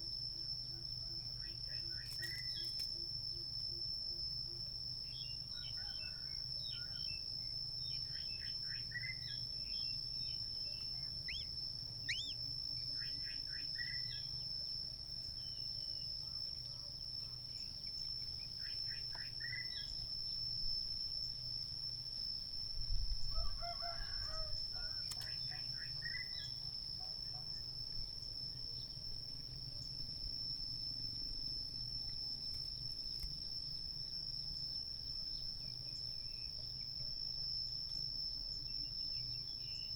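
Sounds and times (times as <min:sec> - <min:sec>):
crickets trilling: 0:00.0 - 0:39.9
birds chirping: 0:12.1 - 0:12.4
low bird call: 0:12.1 - 0:12.4.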